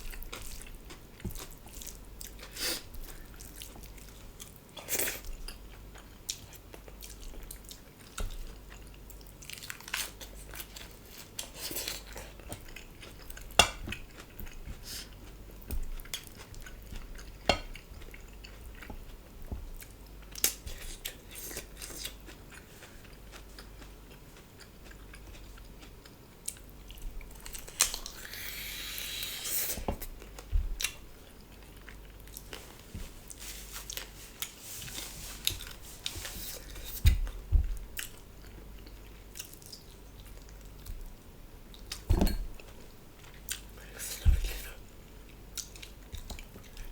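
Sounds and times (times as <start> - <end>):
chewing and biting food: 0.0 - 29.4.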